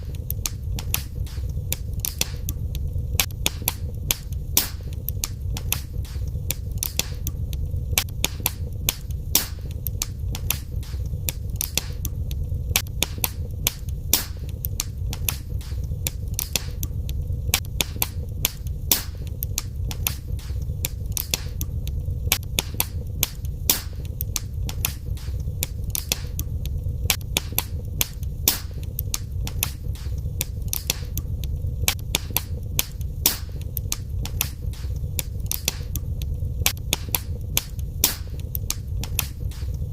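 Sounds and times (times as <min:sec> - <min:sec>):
fire crackling and popping: 0:00.0 - 0:39.9
flames rumbling: 0:00.0 - 0:39.9.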